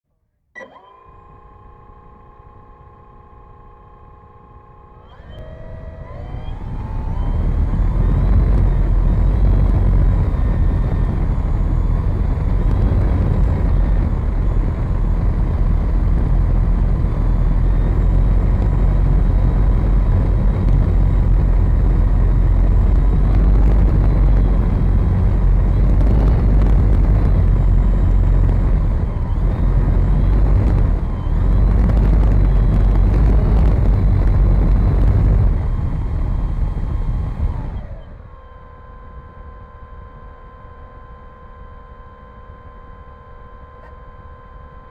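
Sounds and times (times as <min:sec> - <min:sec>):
model plane motor whine: 0:00.6 - 0:44.9
wind rumble: 0:05.5 - 0:38.0.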